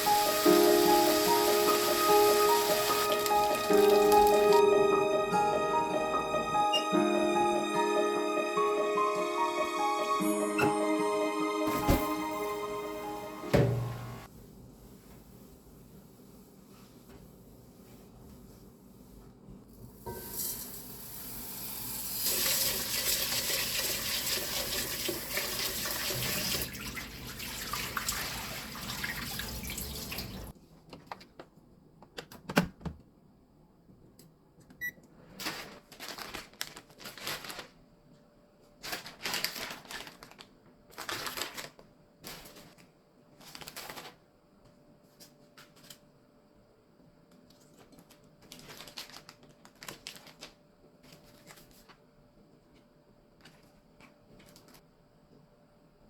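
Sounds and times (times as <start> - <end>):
rustling and clattering in kitchen: 0.0 - 4.6, 11.7 - 12.6, 13.4 - 20.8, 34.6 - 46.2, 47.3 - 54.9
tap running into sink: 13.5 - 14.2.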